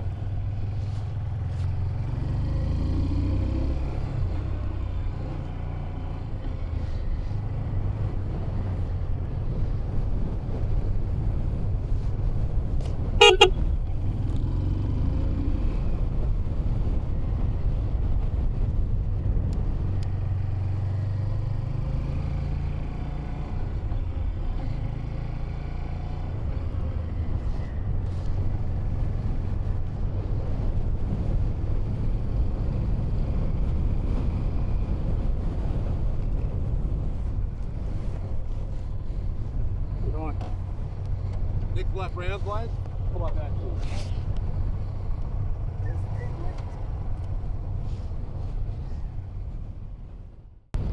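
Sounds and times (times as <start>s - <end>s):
motorcycle engine running: 0.0s - 15.2s
short horn toot: 13.2s - 13.7s.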